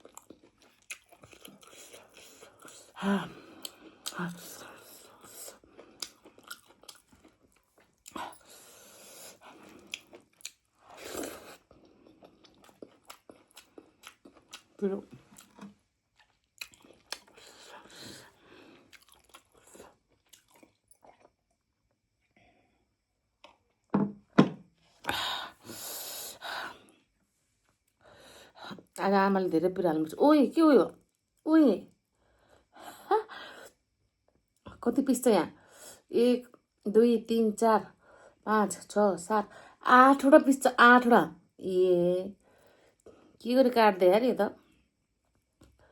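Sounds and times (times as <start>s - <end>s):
open-mouth chewing: 0.0s - 21.7s.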